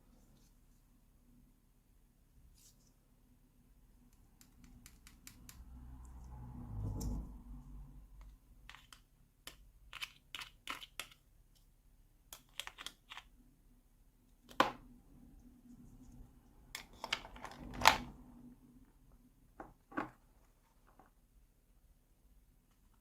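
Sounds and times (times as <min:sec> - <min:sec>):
plastic toy pieces clicking: 0:08.6 - 0:11.2, 0:12.3 - 0:13.3.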